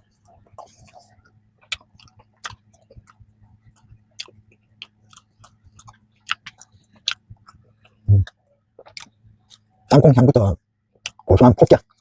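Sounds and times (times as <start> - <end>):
chewing pastry: 0.0 - 10.0.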